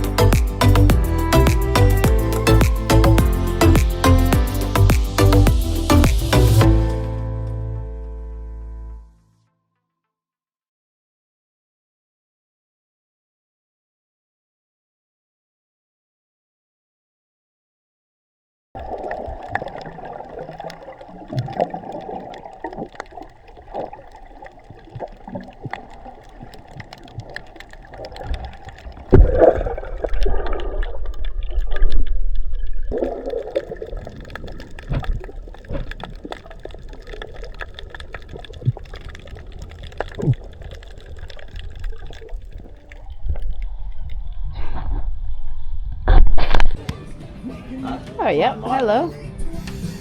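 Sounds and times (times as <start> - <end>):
water sloshing and gurgling: 0.0 - 7.1, 18.8 - 46.9.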